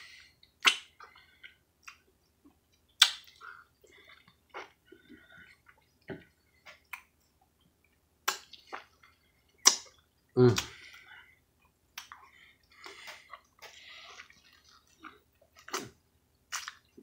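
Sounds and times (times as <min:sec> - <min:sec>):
person chewing juicy fruit: 0:00.0 - 0:17.0
wet mouth smacks and clicks: 0:00.6 - 0:01.1, 0:03.0 - 0:03.4, 0:08.2 - 0:08.9, 0:09.6 - 0:10.7, 0:12.0 - 0:12.2, 0:15.6 - 0:16.9.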